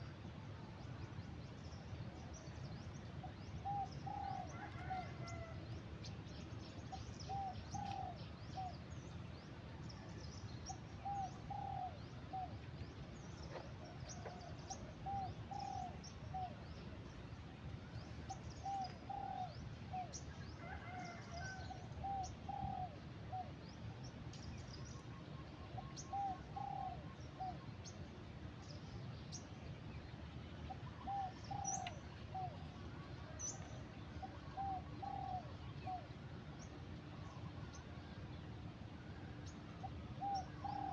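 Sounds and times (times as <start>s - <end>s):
dove cooing: 3.6s - 5.6s, 11.0s - 12.5s, 13.5s - 16.6s, 18.6s - 23.5s, 25.8s - 27.6s, 30.9s - 33.4s, 34.2s - 36.1s, 40.2s - 40.9s.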